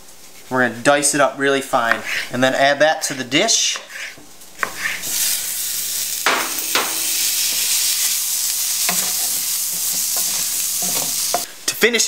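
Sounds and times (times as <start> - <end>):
wooden spoon stirring and scraping: 1.7 - 5.4, 7.4 - 11.5
food sizzling in a skillet: 3.8 - 11.7.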